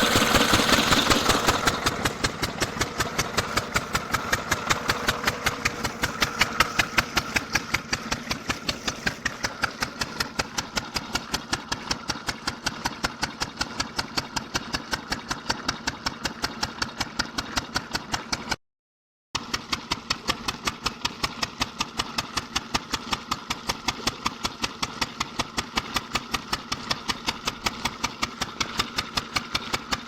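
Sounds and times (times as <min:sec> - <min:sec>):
diesel engine idling: 0:00.0 - 0:18.2.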